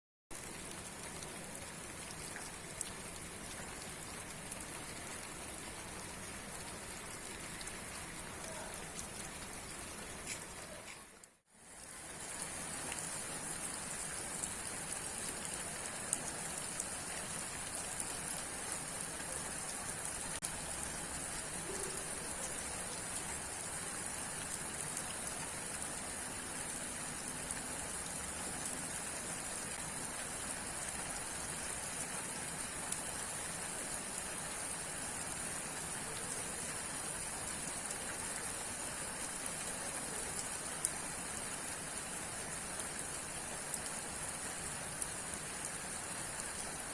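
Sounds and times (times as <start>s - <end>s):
raindrops ticking: 0.3s - 11.4s
steady rain falling: 0.3s - 46.9s.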